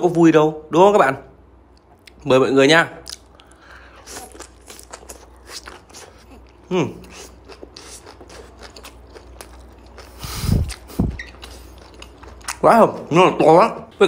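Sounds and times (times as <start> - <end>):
voiced hum: 1.4 - 14.0
crunchy chewing: 3.0 - 13.1.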